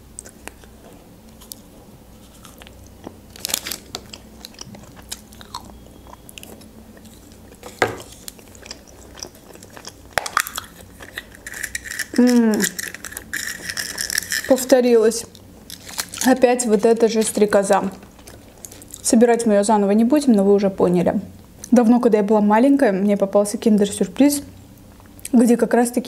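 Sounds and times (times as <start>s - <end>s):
chewing chocolate: 0.2s - 14.7s.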